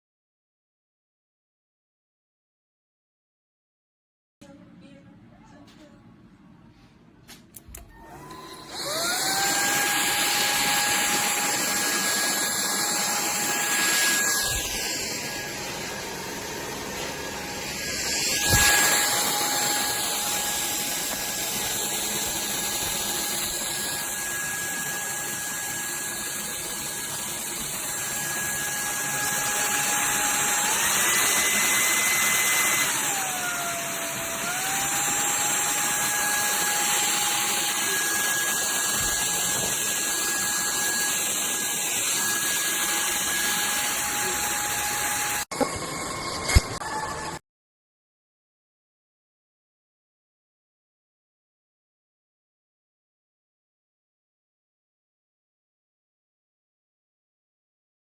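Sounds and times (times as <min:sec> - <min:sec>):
vacuum motor whine: 0:07.8 - 0:47.4.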